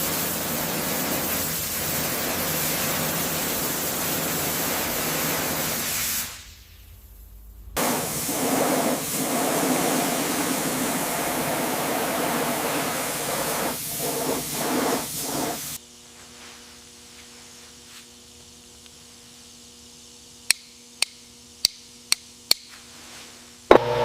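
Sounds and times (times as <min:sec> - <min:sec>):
high-pressure air jet hiss: 0:00.0 - 0:06.8, 0:07.8 - 0:15.8
faint steady hum: 0:06.2 - 0:24.0.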